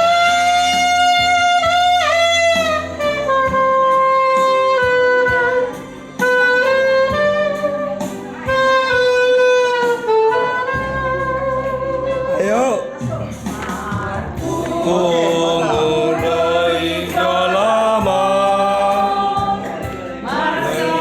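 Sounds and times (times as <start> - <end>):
saxophone melody: 0.0 - 13.0
bass and chord accompaniment: 0.0 - 21.0.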